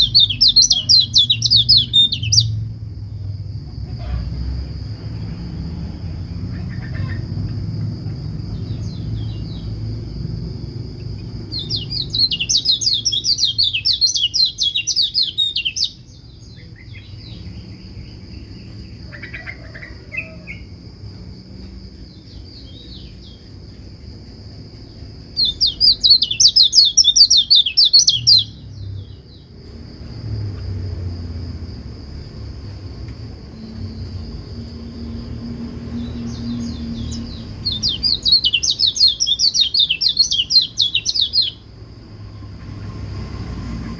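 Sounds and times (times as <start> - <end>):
bird twittering: 0.0 - 2.7, 11.0 - 20.7, 25.4 - 28.6, 36.0 - 41.6.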